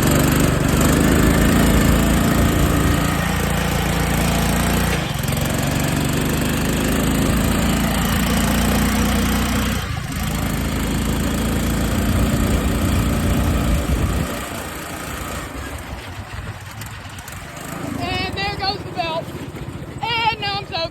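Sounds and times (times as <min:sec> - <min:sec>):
lawn mower engine running: 0:00.0 - 0:20.9.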